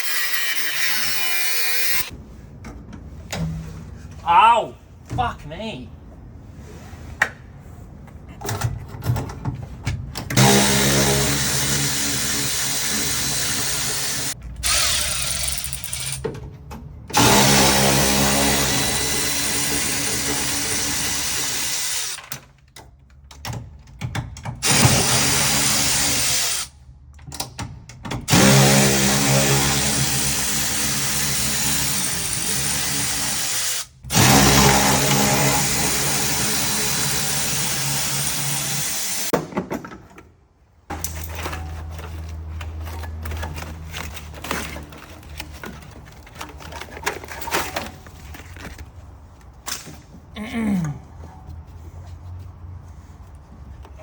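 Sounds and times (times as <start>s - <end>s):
power tool running: 10.4s - 16.2s, 17.2s - 22.2s, 28.3s - 39.3s.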